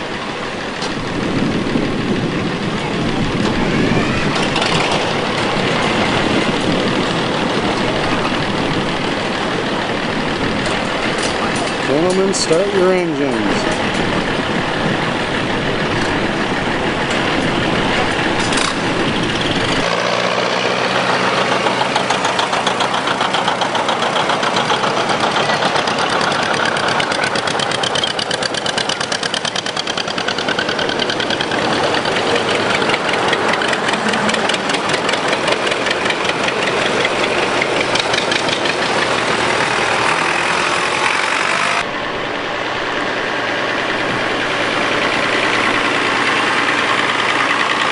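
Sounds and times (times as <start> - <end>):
tractor engines idling: 0.0 - 47.9.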